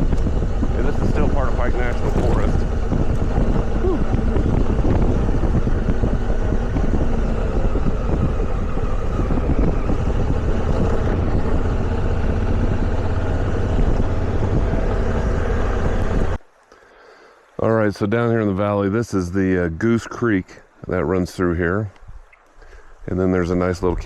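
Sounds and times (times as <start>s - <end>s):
motorcycle engine running: 0.0s - 16.4s
wind rush on microphone: 0.0s - 16.4s.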